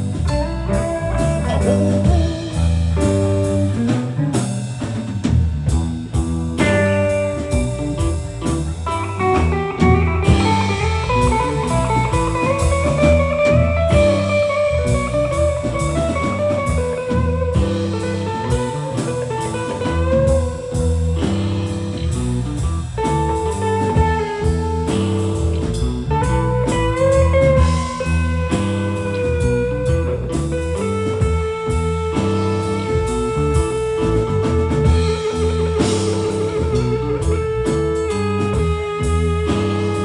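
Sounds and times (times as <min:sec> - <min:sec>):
lead guitar bent notes: 0:00.0 - 0:05.1, 0:05.8 - 0:40.0
live blues band: 0:00.0 - 0:40.0.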